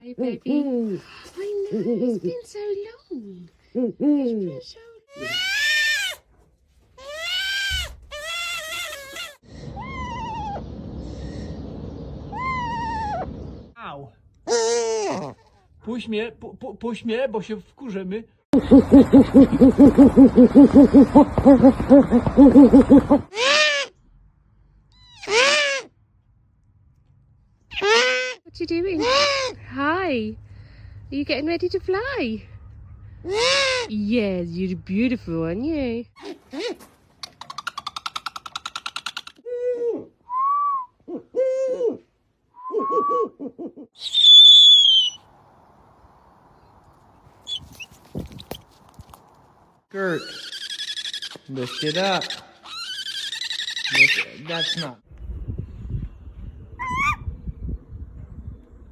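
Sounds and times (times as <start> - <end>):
owl hooting: 18.6 - 23.9, 33.3 - 33.9, 42.6 - 45.2, 56.8 - 57.2
owl drawn-out calls: 33.3 - 33.9, 44.0 - 45.2, 56.8 - 57.2
owl high whistle: 40.3 - 41.0, 42.6 - 43.3, 44.0 - 45.2, 56.8 - 57.2.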